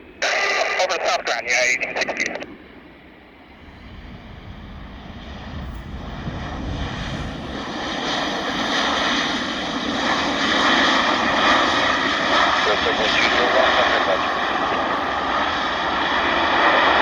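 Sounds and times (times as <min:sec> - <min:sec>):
jet airliner engine roar: 0:00.0 - 0:17.0
jet engine whine: 0:00.0 - 0:17.0.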